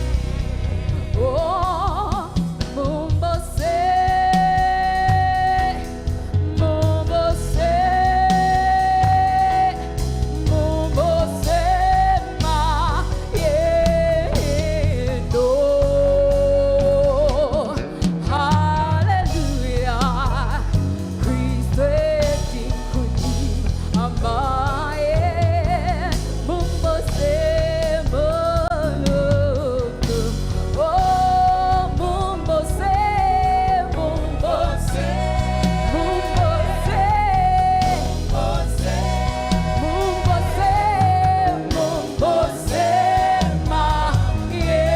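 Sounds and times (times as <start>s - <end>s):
lead voice singing: 0.0s - 44.9s
live band with bass and drums: 0.0s - 44.9s
choir singing: 33.9s - 44.9s.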